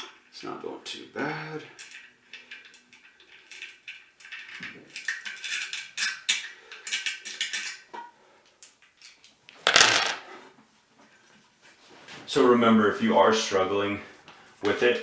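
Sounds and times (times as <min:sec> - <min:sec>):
metal bolts clinking and rattling: 0:01.8 - 0:07.9, 0:08.6 - 0:10.2.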